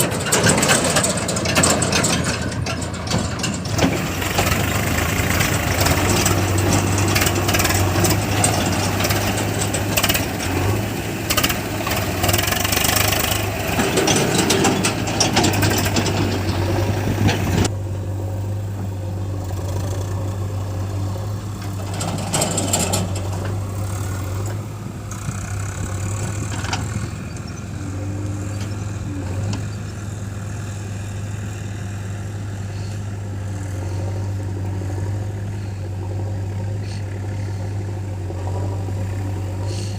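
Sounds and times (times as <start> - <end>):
heavy clattering: 0.0 - 17.7
diesel engine humming: 0.0 - 39.9.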